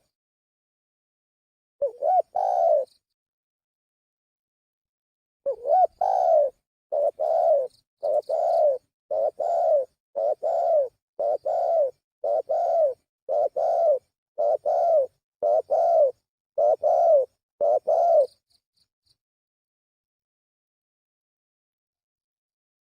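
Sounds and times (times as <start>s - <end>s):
dove cooing: 1.8s - 3.0s, 5.5s - 18.4s.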